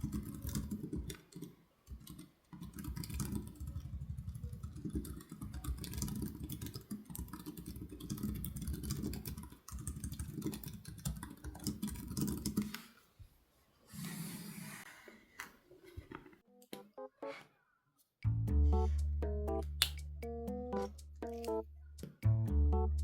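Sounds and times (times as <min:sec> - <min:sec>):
fast keyboard typing: 0:00.0 - 0:12.7.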